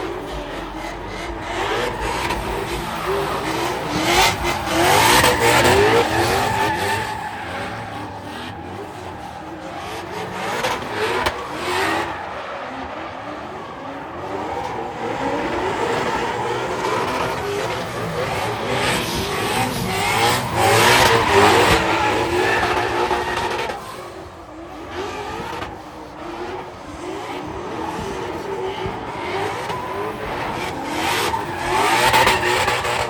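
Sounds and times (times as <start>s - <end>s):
tyres squealing: 0.0s - 24.1s
car engine revving: 0.0s - 33.0s.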